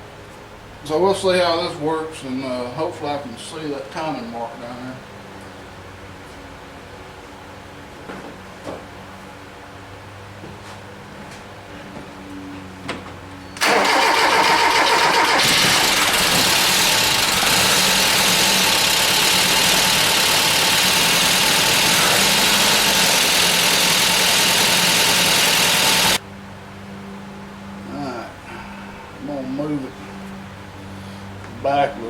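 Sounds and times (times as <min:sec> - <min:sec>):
rough engine starting and running: 0:13.6 - 0:26.2.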